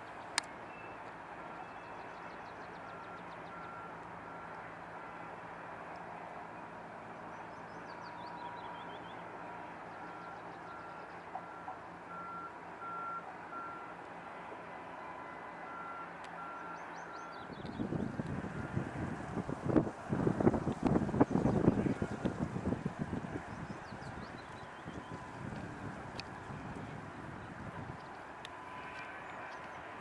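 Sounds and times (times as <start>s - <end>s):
wind buffeting microphone: 17.5s - 28.3s.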